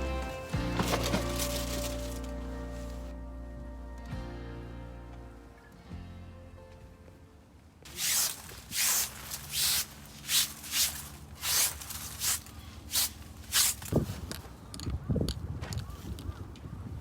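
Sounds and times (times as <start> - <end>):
footsteps crunching: 0.6 - 3.1, 7.9 - 14.6.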